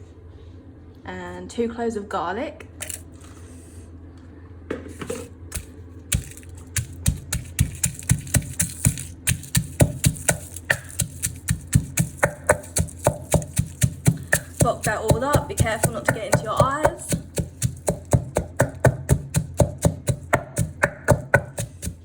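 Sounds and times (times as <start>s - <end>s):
pestle pounding in a mortar: 5.5s - 22.0s.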